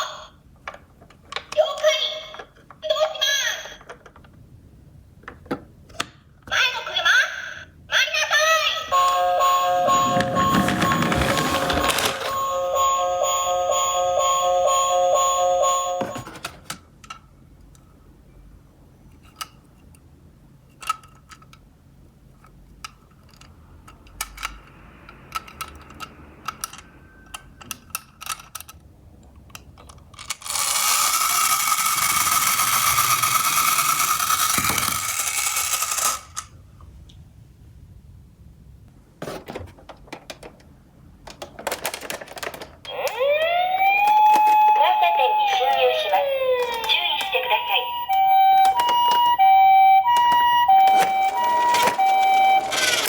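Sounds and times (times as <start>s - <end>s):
toy cars clicking on cardboard: 29.5s - 36.5s.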